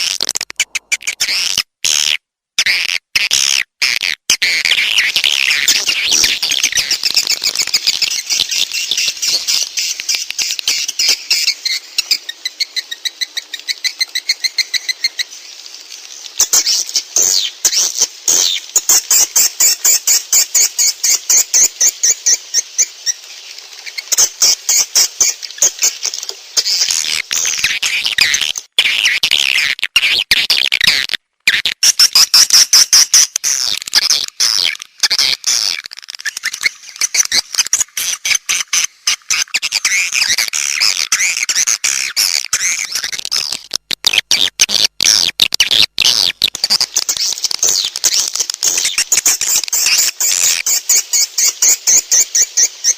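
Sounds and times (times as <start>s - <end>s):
swiftlet chirps and twitters: 4.8s - 15.5s, 45.2s - 52.9s.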